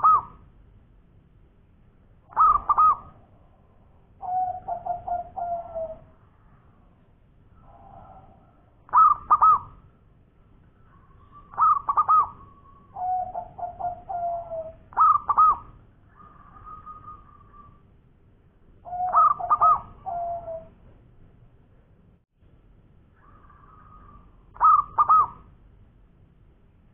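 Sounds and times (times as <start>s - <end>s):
dove cooing: 0.0s - 0.4s, 2.3s - 3.4s, 4.1s - 6.2s, 7.6s - 9.8s, 10.9s - 17.8s, 18.8s - 20.8s, 23.2s - 25.5s.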